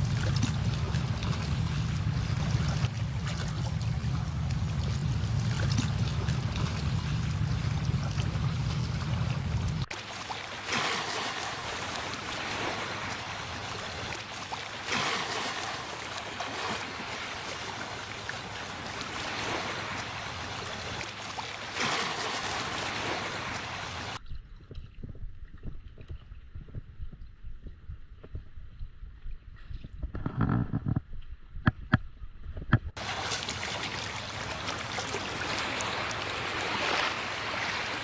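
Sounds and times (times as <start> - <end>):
low rumble: 0.0 - 9.9
surf washing onto beach: 0.0 - 24.2, 33.0 - 38.0
soft low thumps: 24.2 - 33.0.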